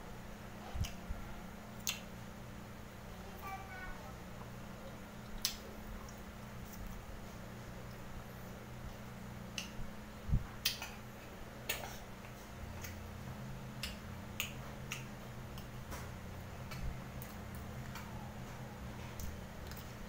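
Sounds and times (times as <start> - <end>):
steady low hum: 0.0 - 20.0
man chewing food: 4.8 - 9.8, 10.5 - 20.0.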